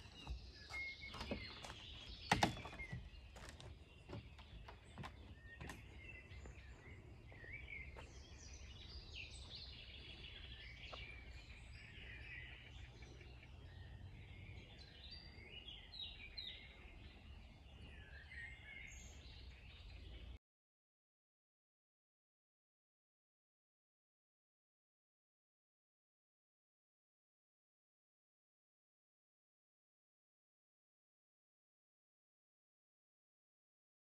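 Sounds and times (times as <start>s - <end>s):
faint birdsong: 0.0s - 20.4s.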